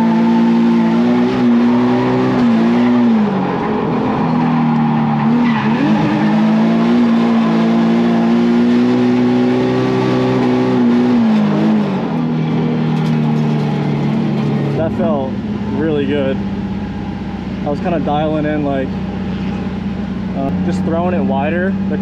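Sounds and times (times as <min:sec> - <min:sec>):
car engine at high revs: 0:00.0 - 0:22.0
tyres squealing: 0:01.2 - 0:07.8.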